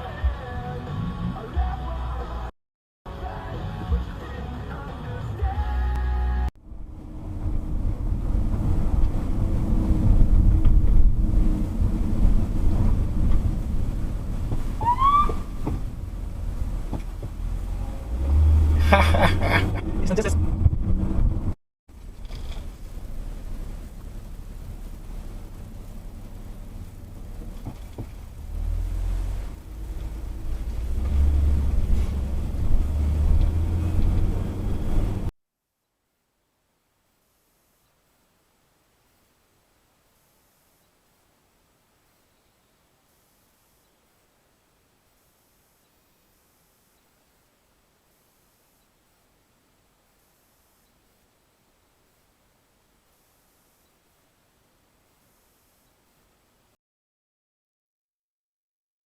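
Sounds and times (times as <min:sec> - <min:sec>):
road noise: 0:00.0 - 0:02.5, 0:03.1 - 0:35.3, 0:36.5 - 0:56.8
vehicle driving rumble: 0:03.1 - 0:35.3.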